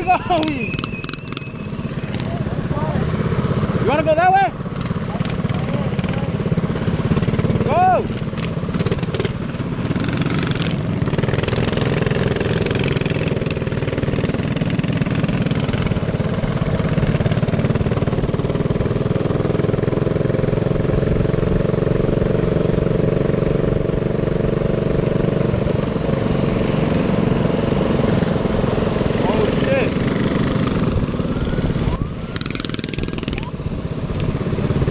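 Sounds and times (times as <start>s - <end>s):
small engine running: 0.0s - 34.9s.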